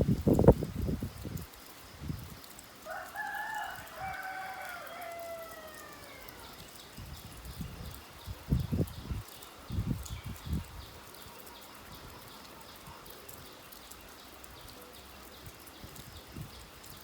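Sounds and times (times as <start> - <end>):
rain hissing: 0.0 - 17.0
rooster crowing: 2.8 - 6.6.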